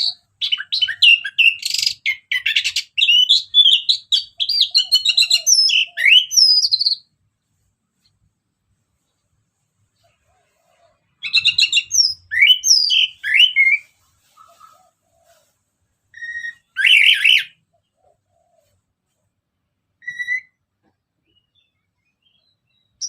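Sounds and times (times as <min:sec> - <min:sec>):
thrush whistled song: 0:11.3 - 0:14.7, 0:16.2 - 0:17.6, 0:20.0 - 0:20.6.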